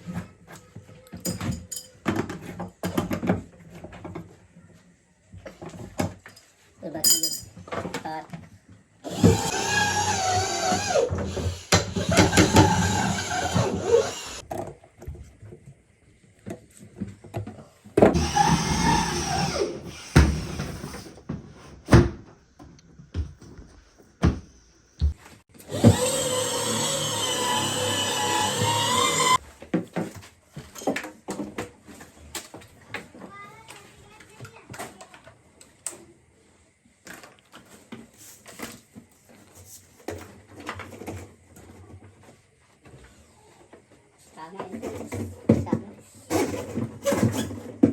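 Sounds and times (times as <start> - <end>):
power tool motor whining: 9.0 - 14.4, 18.1 - 20.8, 25.6 - 29.4.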